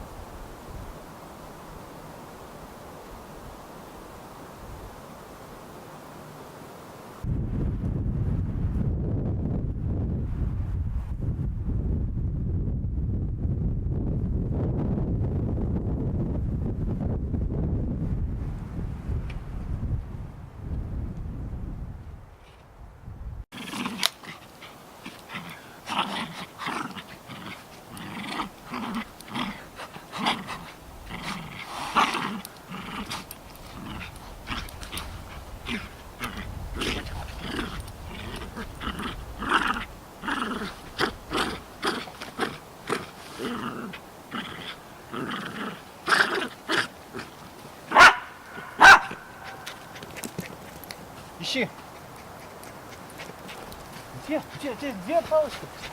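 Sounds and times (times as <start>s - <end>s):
dog growling and grunting: 23.6s - 47.3s.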